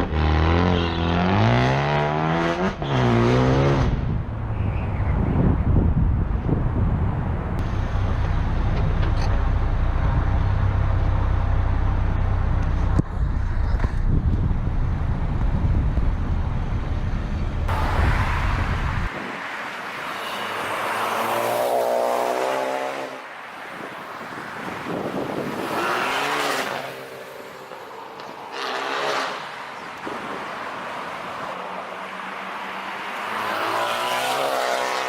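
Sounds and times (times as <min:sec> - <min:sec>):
car engine with deep exhaust drone: 0:05.1 - 0:19.1.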